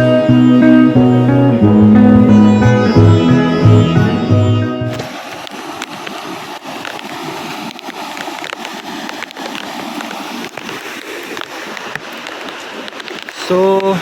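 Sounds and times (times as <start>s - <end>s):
sitar music: 0.0s - 5.1s
running stream water: 0.0s - 14.0s.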